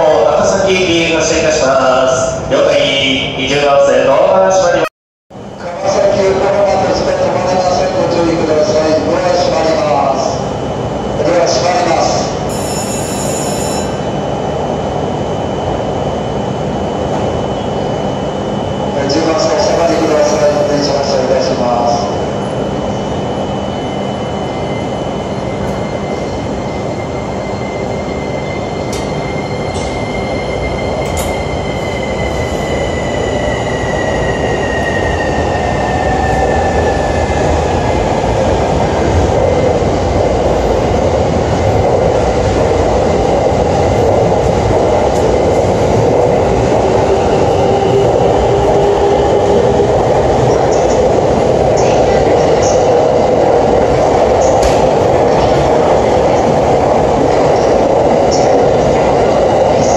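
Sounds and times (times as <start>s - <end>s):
high tone: 12.5s - 14.1s
train rumble: 14.2s - 59.9s.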